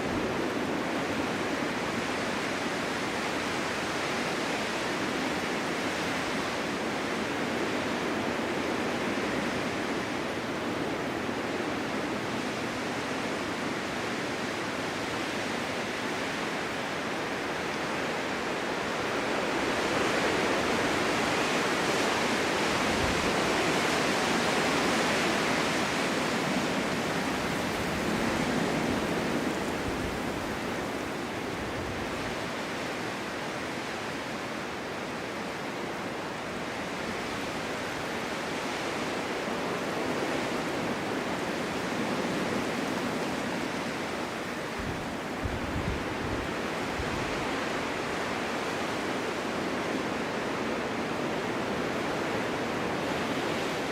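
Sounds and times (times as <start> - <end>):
snowstorm wind gusting: 0.0 - 53.9.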